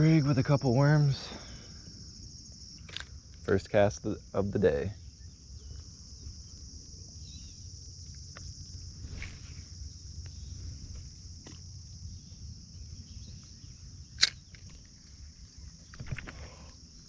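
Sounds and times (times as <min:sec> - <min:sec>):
insects chirring: 0:00.0 - 0:17.0
sharp click: 0:14.2 - 0:14.8.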